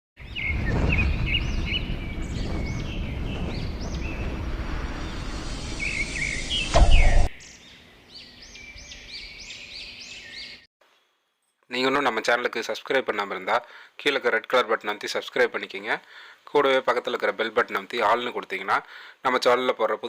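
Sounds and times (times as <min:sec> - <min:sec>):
small birds chirping: 0:00.2 - 0:11.1
loud low rumbling: 0:00.5 - 0:07.3.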